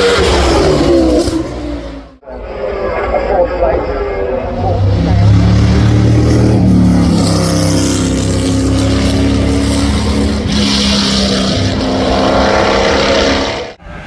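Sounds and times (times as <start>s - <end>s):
car engine revving high: 4.4s - 13.8s.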